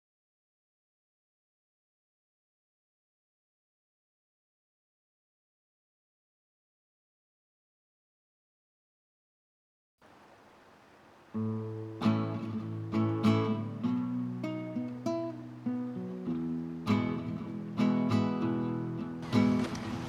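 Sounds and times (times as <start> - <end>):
faint hiss: 10.0 - 20.0
acoustic guitar music: 11.3 - 20.0.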